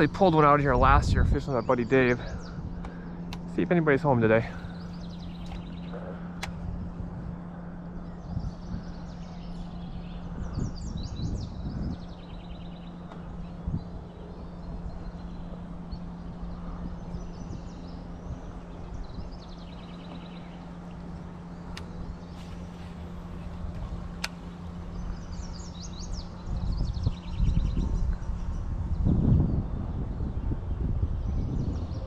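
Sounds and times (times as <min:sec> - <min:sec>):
small birds chirping trills: 0:00.0 - 0:32.0
steady low hum: 0:00.0 - 0:32.0
sharp click: 0:24.2 - 0:24.4.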